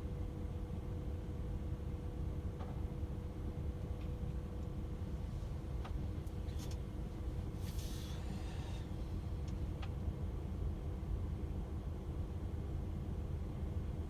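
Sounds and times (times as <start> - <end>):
truck engine and road drone: 0.2 - 14.0
brief hiss: 7.6 - 8.9.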